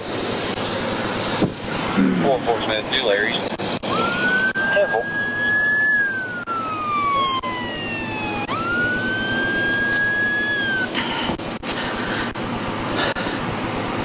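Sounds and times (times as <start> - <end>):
police siren wailing: 3.8 - 11.2.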